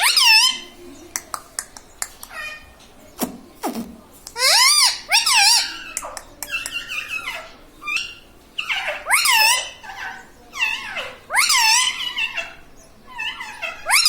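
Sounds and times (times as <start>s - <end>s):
parrot calling: 0.0s - 0.7s, 4.4s - 14.0s.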